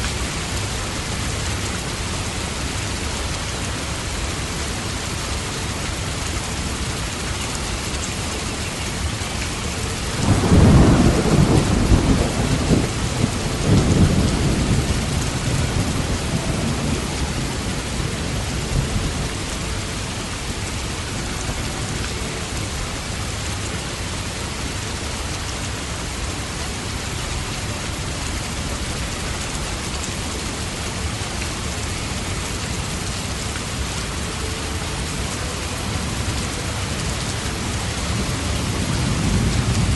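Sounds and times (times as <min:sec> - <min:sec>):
steady rain: 0:00.0 - 0:39.9
rolling thunder: 0:10.2 - 0:19.4, 0:38.0 - 0:39.9.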